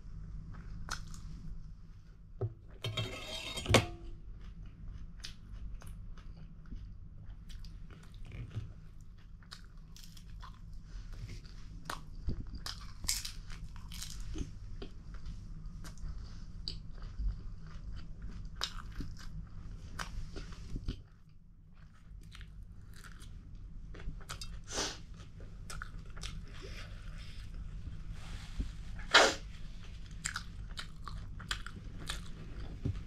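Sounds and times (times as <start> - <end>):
person chewing and biting: 16.6 - 19.4.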